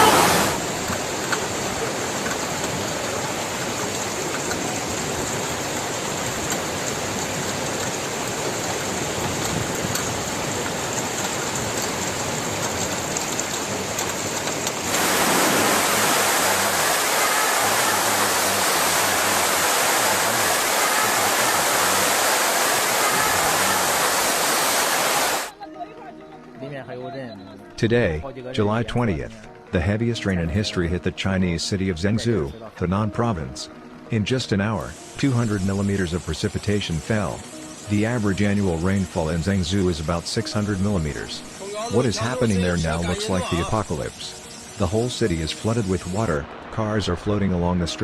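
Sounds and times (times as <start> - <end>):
heavy water rushing: 0.0 - 25.5, 34.8 - 47.6.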